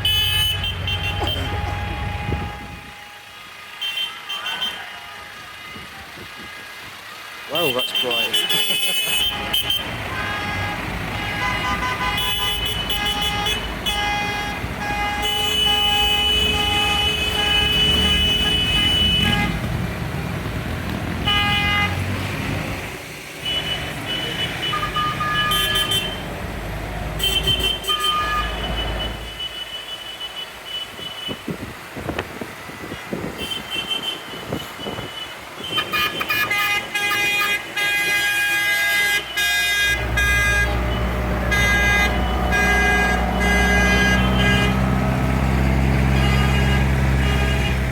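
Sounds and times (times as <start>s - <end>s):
tractor horns tooting: 0.0s - 6.8s, 7.5s - 19.8s, 21.2s - 22.4s, 23.4s - 26.4s, 27.1s - 31.5s, 33.3s - 47.9s
tractor engines rumbling: 0.0s - 47.9s.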